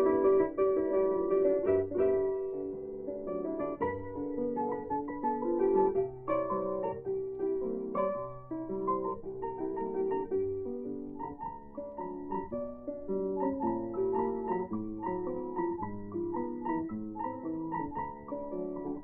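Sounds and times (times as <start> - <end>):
blues piano: 0.0 - 19.0.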